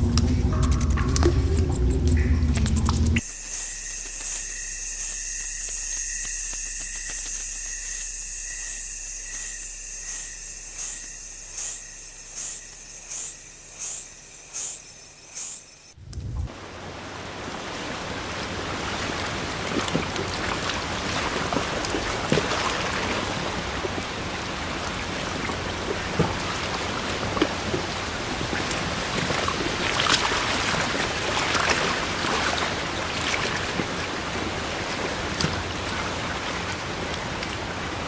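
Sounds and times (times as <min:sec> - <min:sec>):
high-pitched insect chorus: 0:03.2 - 0:16.0.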